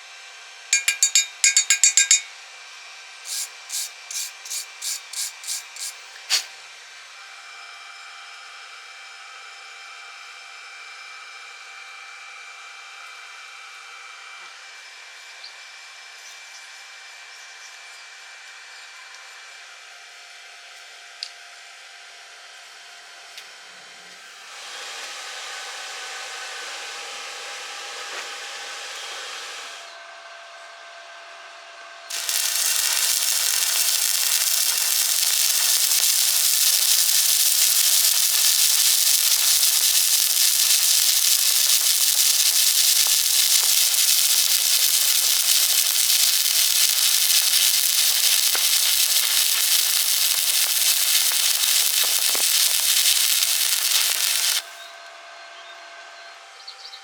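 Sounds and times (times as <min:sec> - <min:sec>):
welding arc crackling: 0:00.8 - 0:02.3, 0:03.3 - 0:06.5, 0:32.1 - 0:54.8.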